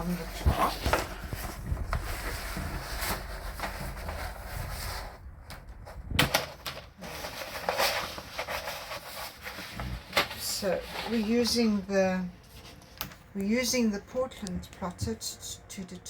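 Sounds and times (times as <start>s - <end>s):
paper rustling: 0.0s - 11.8s.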